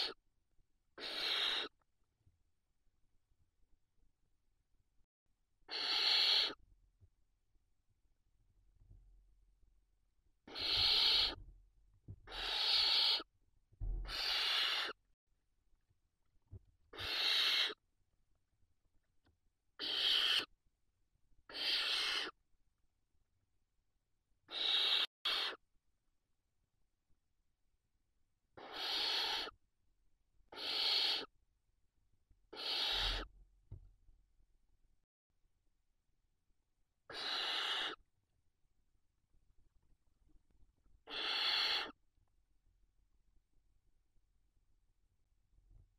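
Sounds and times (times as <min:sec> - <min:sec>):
owl chicks hissing calls: 0:00.0 - 0:00.2, 0:01.0 - 0:01.8, 0:05.7 - 0:06.6, 0:10.4 - 0:11.4, 0:12.2 - 0:13.3, 0:14.0 - 0:15.0, 0:16.9 - 0:17.8, 0:19.8 - 0:20.5, 0:21.5 - 0:22.4, 0:24.5 - 0:25.6, 0:28.6 - 0:29.6, 0:30.5 - 0:31.3, 0:32.5 - 0:33.3, 0:37.1 - 0:38.0, 0:41.0 - 0:42.0
soft knock: 0:13.8 - 0:14.1.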